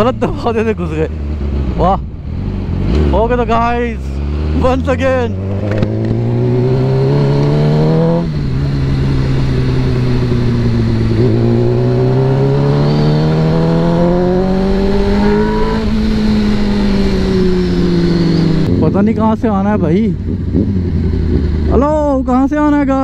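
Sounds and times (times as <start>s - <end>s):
motorcycle engine revving: 0.0s - 23.0s
wind noise: 5.3s - 19.2s.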